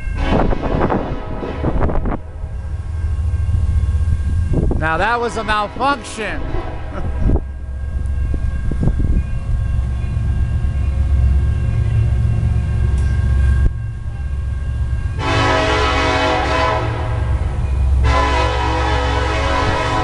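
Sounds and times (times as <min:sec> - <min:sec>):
freight train rumbling past: 0:00.0 - 0:20.0
locomotive air horn blast: 0:00.2 - 0:02.2, 0:05.6 - 0:07.3, 0:15.2 - 0:17.4, 0:18.0 - 0:20.0.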